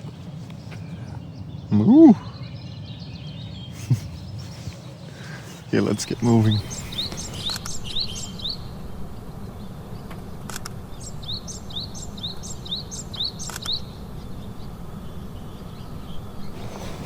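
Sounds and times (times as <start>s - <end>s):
bird singing rising notes: 0.3s - 17.0s
steady low rumble: 0.4s - 17.0s
sharp clicks: 10.1s - 10.8s, 13.4s - 13.8s.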